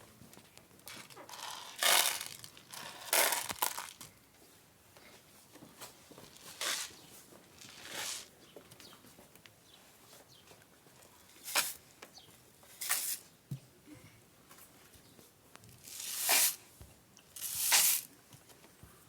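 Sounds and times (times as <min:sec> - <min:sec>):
rain stick pellets cascading: 0:01.4 - 0:04.0, 0:15.8 - 0:16.6, 0:17.4 - 0:18.1.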